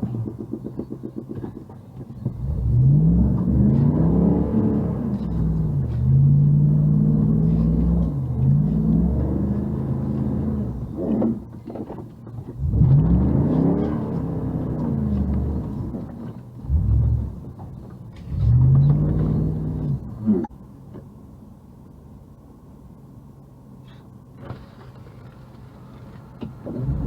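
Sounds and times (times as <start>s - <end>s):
vehicle engine revving: 1.3s - 11.6s, 12.4s - 20.5s, 24.4s - 27.0s.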